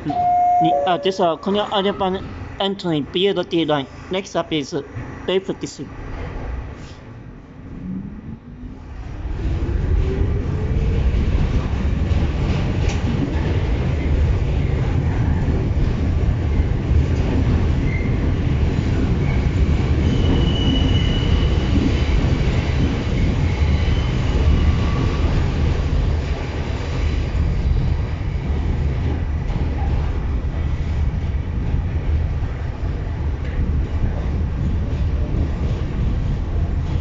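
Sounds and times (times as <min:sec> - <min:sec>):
high-pitched wheel squeals: 0:00.0 - 0:01.7
subway wheels rumbling on track: 0:00.0 - 0:37.0.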